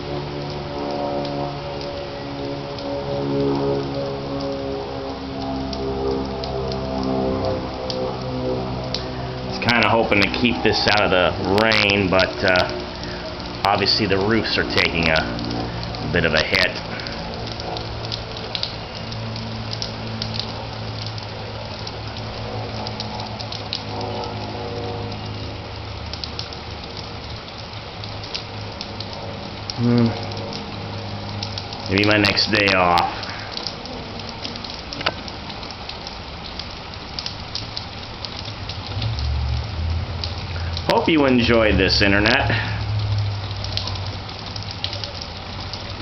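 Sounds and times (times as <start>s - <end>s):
low hum: 0.0s - 35.7s
heavy rain on roofs: 0.0s - 46.0s.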